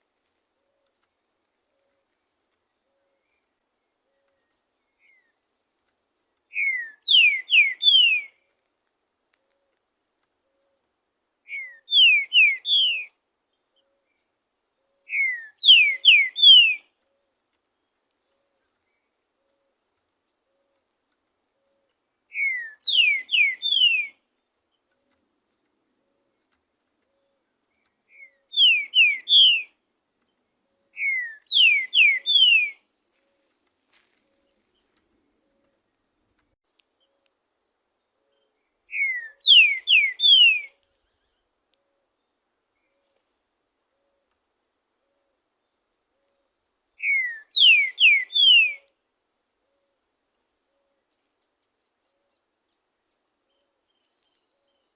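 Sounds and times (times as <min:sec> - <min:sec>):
bird whistling song: 0:06.5 - 0:08.4, 0:11.5 - 0:13.2, 0:15.0 - 0:16.9, 0:22.3 - 0:24.2, 0:28.1 - 0:29.8, 0:30.9 - 0:32.8, 0:38.3 - 0:41.4, 0:47.0 - 0:48.9.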